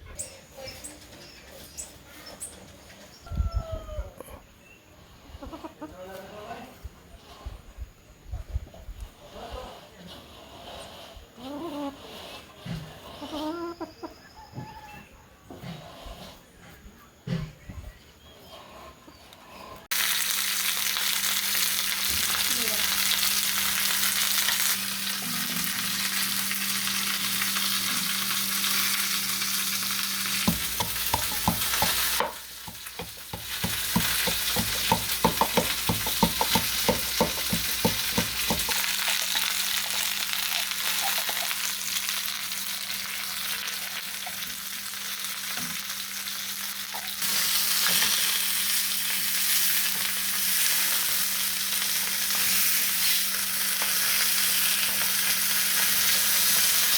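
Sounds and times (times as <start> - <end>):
food sizzling in hot oil: 19.9 - 56.9
utensil stirring against a pan: 30.3 - 39.3.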